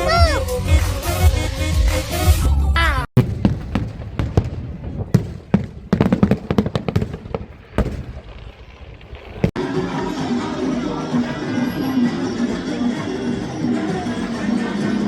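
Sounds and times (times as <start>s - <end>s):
fireworks bangs and crackles: 3.2s - 10.2s.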